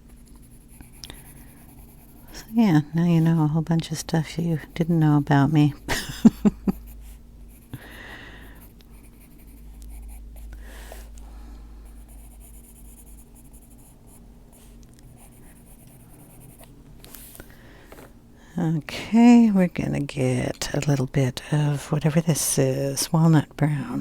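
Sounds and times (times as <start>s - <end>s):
colored pencil scratching on paper: 0.0s - 5.8s, 8.5s - 10.5s, 11.9s - 17.3s.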